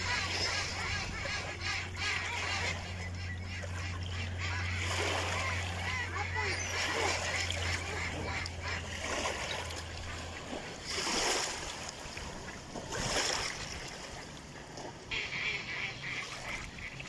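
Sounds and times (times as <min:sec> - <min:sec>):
low steady hum: 0:00.0 - 0:11.0
ducks splashing in water: 0:00.0 - 0:17.0.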